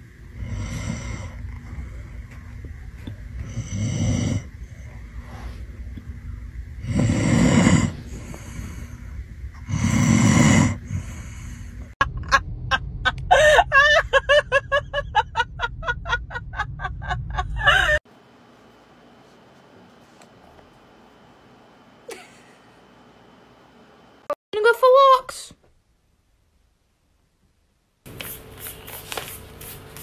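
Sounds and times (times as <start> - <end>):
dog snoring: 0.3 - 1.6, 3.4 - 4.8, 6.8 - 8.8, 9.6 - 11.4.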